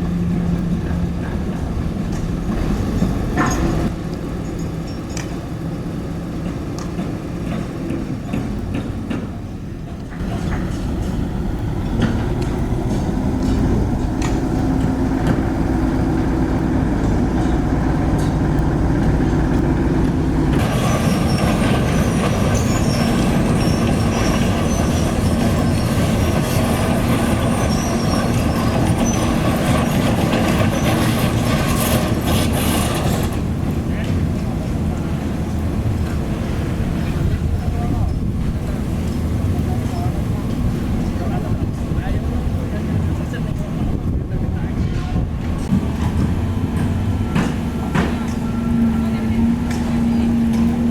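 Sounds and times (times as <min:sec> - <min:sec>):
diesel engine running: 0:00.0 - 0:50.9
harsh hissing with squeaks: 0:20.6 - 0:31.2.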